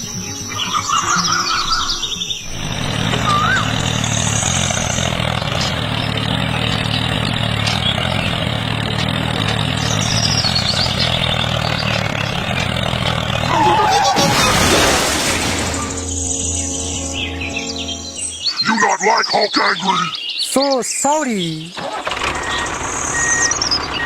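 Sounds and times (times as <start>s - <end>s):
vehicle engine humming: 2.3s - 18.7s, 21.7s - 24.0s.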